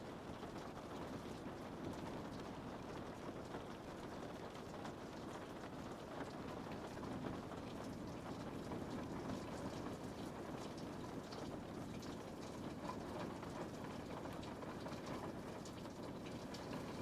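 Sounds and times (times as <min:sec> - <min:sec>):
rain pattering on a window: 0:00.0 - 0:17.0.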